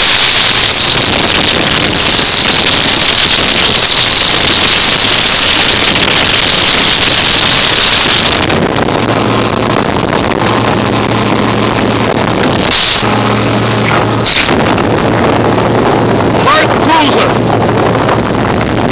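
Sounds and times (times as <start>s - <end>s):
boat engine drone: 0.0s - 18.9s
wind rush on microphone: 0.0s - 18.9s.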